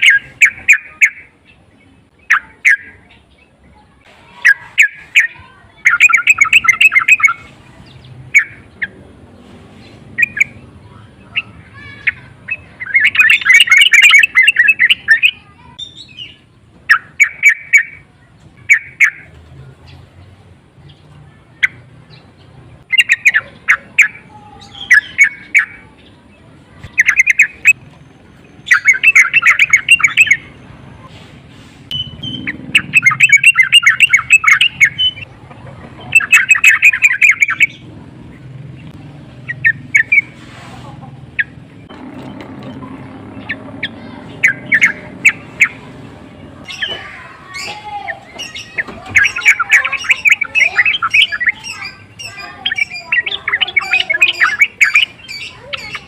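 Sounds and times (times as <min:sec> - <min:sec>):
bird chattering calls: 0:00.0 - 0:03.4, 0:04.1 - 0:31.3, 0:31.9 - 0:56.0.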